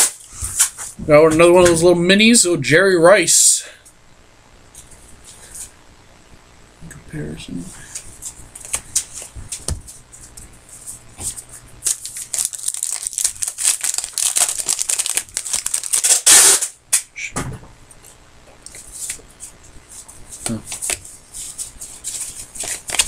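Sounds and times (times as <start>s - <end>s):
wrapper crinkling: 11.8s - 16.8s, 21.8s - 23.0s
wrapper ripping: 11.8s - 16.8s, 22.2s - 23.0s
cards clicking and sliding: 22.0s - 23.0s.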